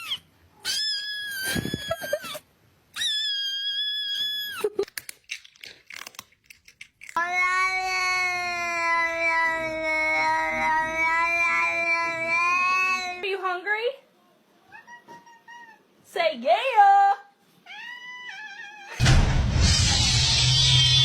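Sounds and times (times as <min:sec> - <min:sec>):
cat yowling: 0:00.0 - 0:04.7, 0:07.2 - 0:13.2, 0:17.7 - 0:19.0
cat meowing: 0:14.7 - 0:15.9, 0:17.6 - 0:19.0.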